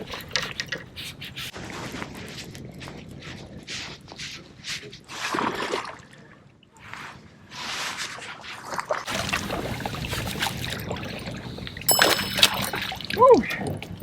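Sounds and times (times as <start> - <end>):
water splashing and trickling: 8.6 - 14.0.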